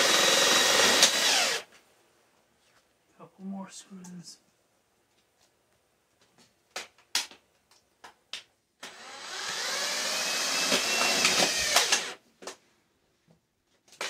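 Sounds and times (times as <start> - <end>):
cordless drill whining: 0.0 - 1.7, 8.8 - 12.2.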